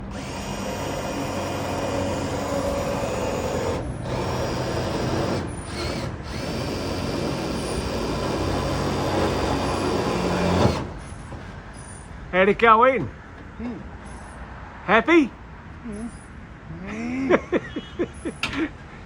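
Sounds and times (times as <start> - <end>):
impact driver driving a screw: 0.0 - 11.0.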